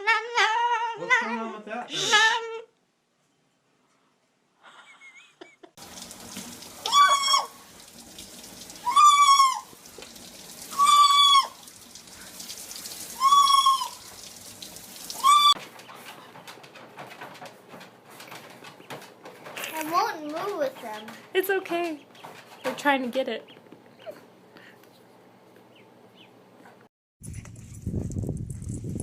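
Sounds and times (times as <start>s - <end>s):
bird calling: 6.8s - 7.7s, 10.7s - 11.7s, 13.0s - 14.1s, 15.1s - 16.5s.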